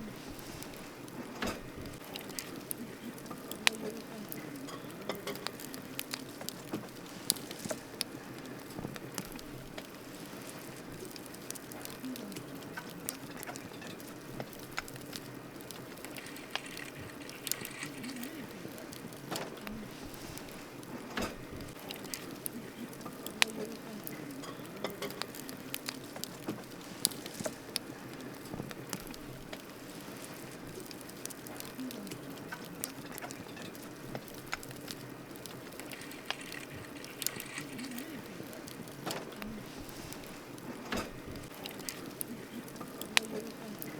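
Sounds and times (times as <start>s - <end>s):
burning wood crackling and popping: 0.0s - 43.9s
campfire flames rushing: 0.0s - 43.9s.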